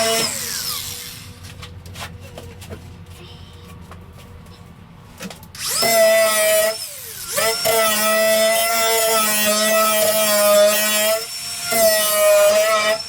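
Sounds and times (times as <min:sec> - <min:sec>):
power drill whining: 0:00.0 - 0:01.4, 0:05.6 - 0:13.0.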